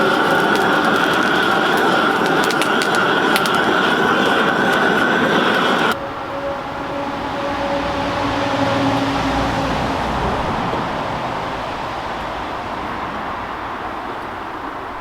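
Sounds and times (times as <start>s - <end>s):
vehicle passing with rushing noise: 5.9s - 15.0s.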